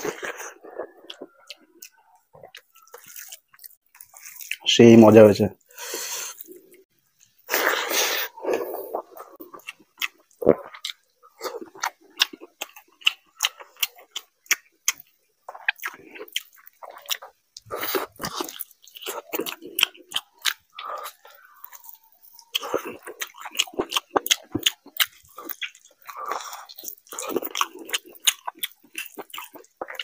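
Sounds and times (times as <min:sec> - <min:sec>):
wet chewing mouth clicks: 0:07.5 - 0:30.0.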